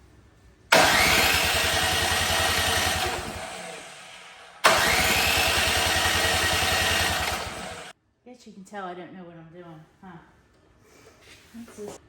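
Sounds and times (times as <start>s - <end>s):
snowblower engine cranking: 0.7s - 8.0s.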